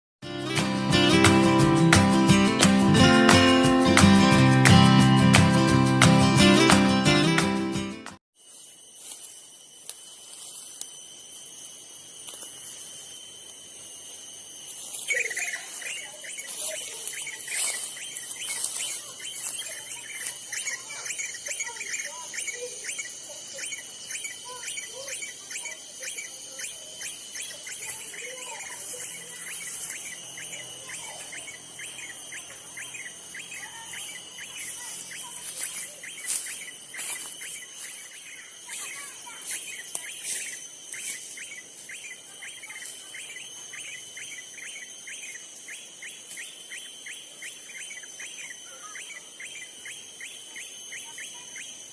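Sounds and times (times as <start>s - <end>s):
high-pitched insect drone: 8.4s - 51.9s
birds chirping: 14.5s - 51.9s.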